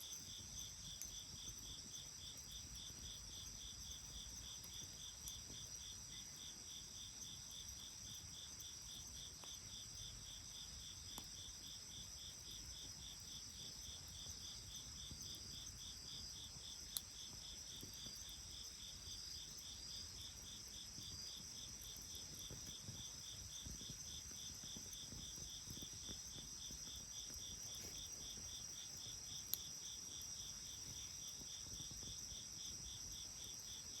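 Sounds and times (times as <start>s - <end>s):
insects chirping: 0.0s - 34.0s.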